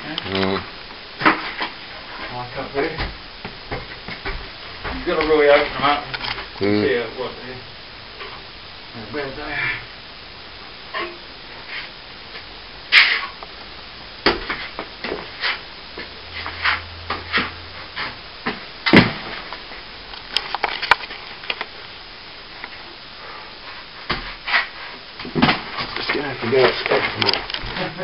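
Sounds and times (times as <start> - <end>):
sharp knocks and scrapes: 16.4 - 18.6.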